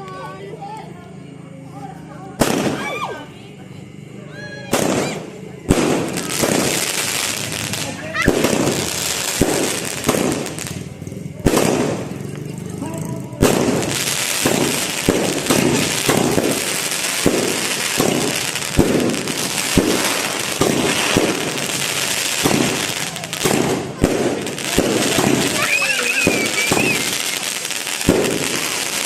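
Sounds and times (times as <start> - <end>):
fireworks hissing crackle: 1.7 - 29.0
fireworks bangs: 2.4 - 3.3, 4.6 - 29.0.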